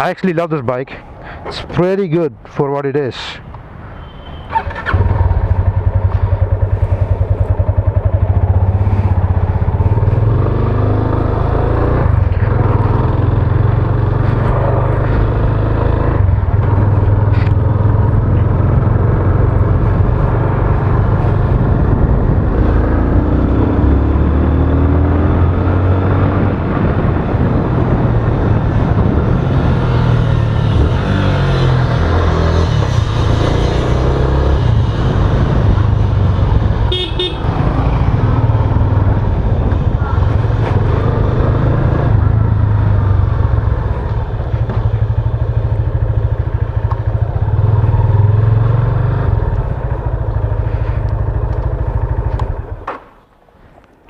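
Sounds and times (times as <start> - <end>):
motorcycle engine running: 4.8 - 52.8.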